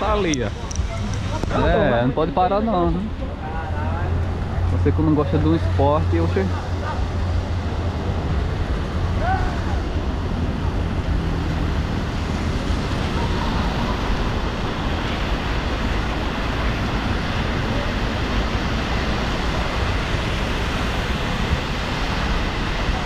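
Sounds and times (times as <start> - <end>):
heavy rain falling: 6.0 - 23.0.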